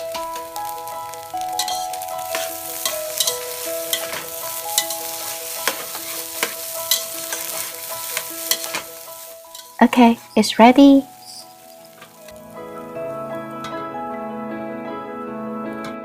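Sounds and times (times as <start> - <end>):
rice sizzling in oil: 0.0 - 13.9
utensil scraping pan: 1.6 - 9.8.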